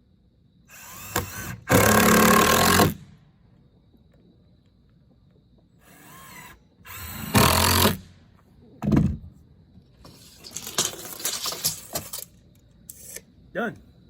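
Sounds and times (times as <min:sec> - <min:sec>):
power drill driving fasteners: 0:00.7 - 0:03.0, 0:05.8 - 0:08.1.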